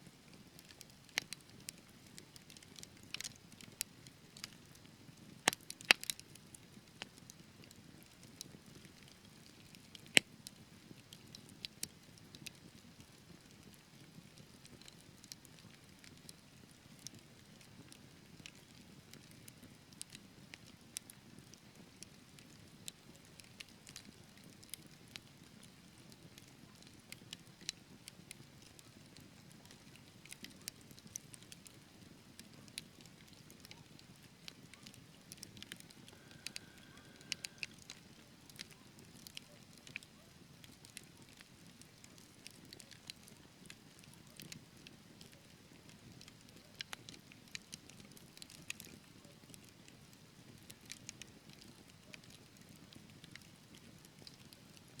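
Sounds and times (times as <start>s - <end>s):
logs crackling and popping: 0.3s - 55.0s
fire hissing: 36.0s - 37.8s.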